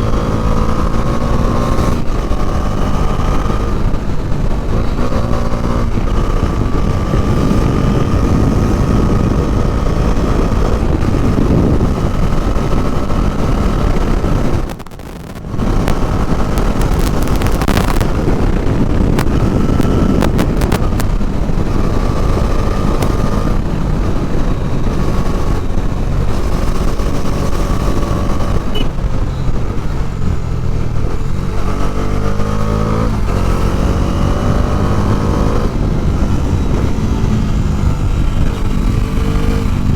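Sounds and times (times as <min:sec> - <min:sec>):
motorcycle engine running: 0:00.0 - 0:39.9
wind noise: 0:00.0 - 0:39.9
sharp clicks: 0:14.6 - 0:21.2.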